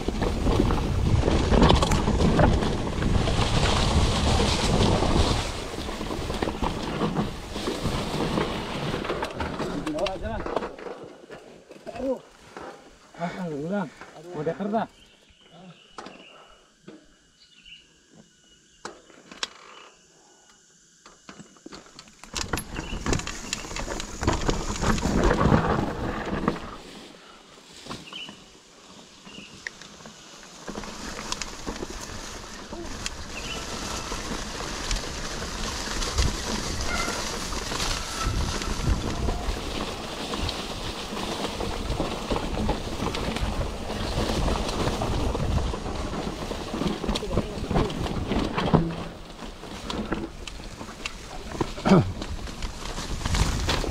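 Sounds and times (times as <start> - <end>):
bike tyres rattling over rough ground: 0.0 - 15.5, 21.4 - 53.9
bike clicks: 21.1 - 26.6, 30.6 - 53.9
wind buffeting microphone: 31.7 - 53.9.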